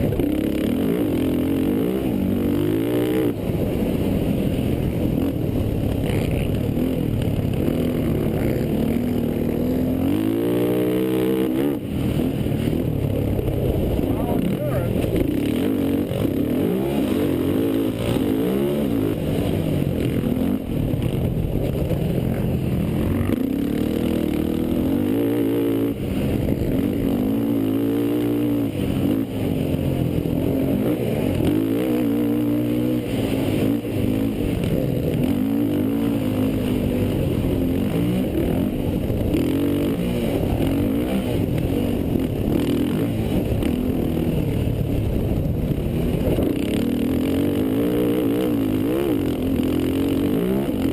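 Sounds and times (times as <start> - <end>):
quad engines revving: 5.1 - 45.2, 45.8 - 50.9.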